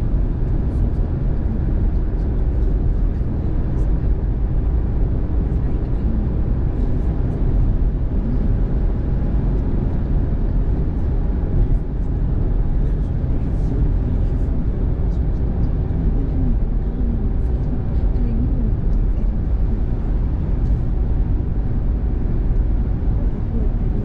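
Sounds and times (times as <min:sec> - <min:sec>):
car road noise on wet road: 0:00.0 - 0:24.0.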